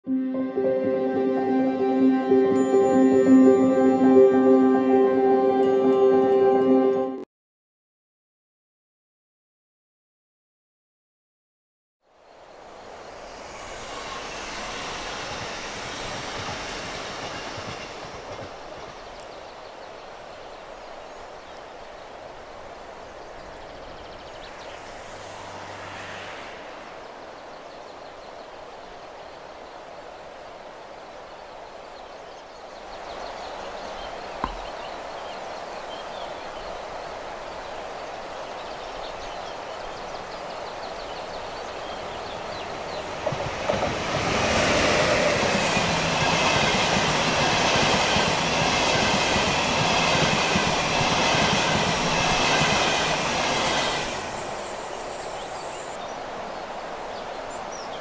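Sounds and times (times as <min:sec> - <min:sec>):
steady rushing hiss: 0:12.1 - 0:58.0
train wheels rumbling on rails: 0:12.8 - 0:19.6, 0:41.8 - 0:55.8.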